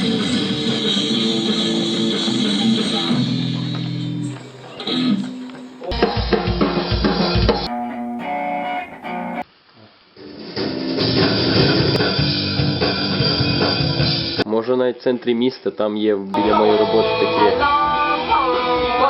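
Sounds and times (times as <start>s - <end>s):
rock band music with guitars: 0.0s - 9.4s, 10.4s - 14.4s
heavy bass notes: 5.9s - 9.4s.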